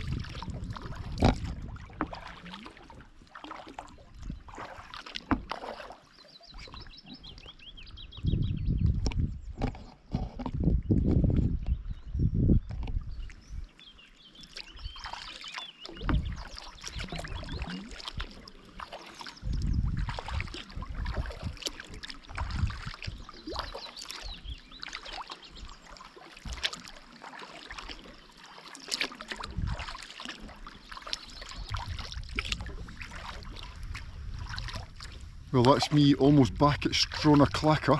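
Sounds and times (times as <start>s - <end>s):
paddle splashing in water: 0.0s - 7.8s, 8.9s - 11.8s, 12.6s - 37.9s
water dripping: 14.5s - 37.8s.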